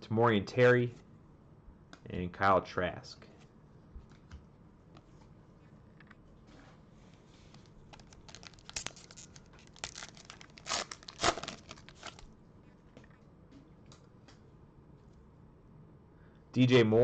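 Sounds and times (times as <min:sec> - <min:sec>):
wrapper tearing and crinkling: 0:07.9 - 0:12.3.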